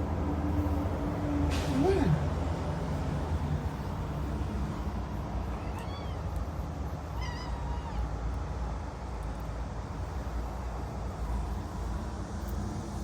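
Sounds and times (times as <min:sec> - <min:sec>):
cat meowing: 0:05.5 - 0:06.4, 0:07.1 - 0:08.2.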